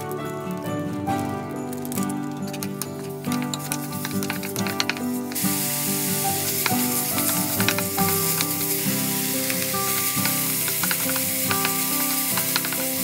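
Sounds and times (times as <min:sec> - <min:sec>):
wooden spatula tapping pan: 0:02.5 - 0:13.0
chicken sizzling in a wok: 0:03.6 - 0:13.0.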